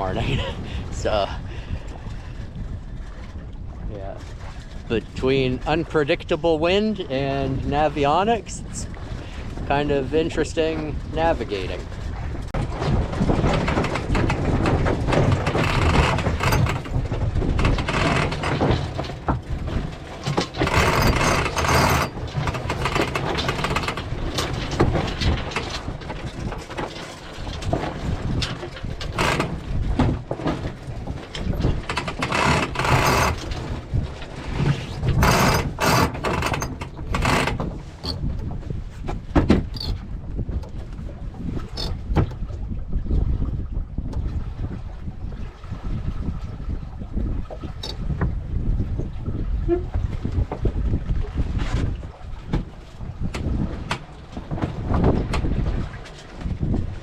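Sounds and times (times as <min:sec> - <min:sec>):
water rushing along hull: 0:00.0 - 0:57.0
wind buffeting microphone: 0:00.0 - 0:57.0.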